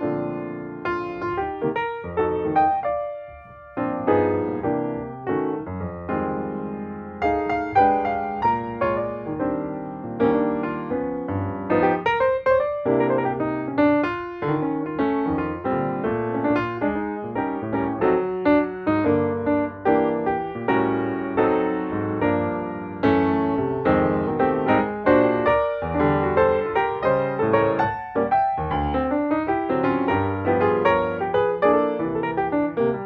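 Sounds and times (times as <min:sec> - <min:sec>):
piano music: 0:00.0 - 0:33.0.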